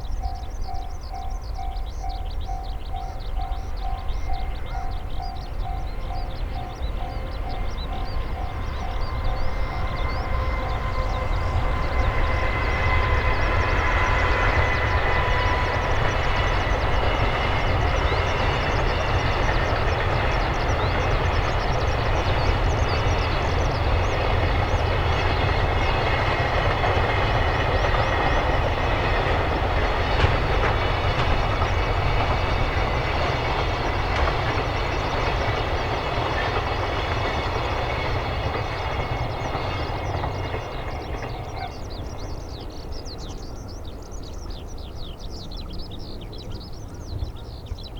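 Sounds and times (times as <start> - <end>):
train wheels rumbling on rails: 0.0 - 47.9.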